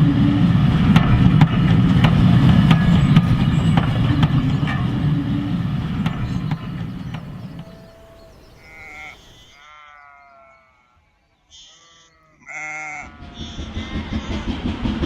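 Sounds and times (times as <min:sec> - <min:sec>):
model train running: 0:00.0 - 0:09.6, 0:13.2 - 0:15.0
sheep and lambs bleating: 0:02.8 - 0:14.2.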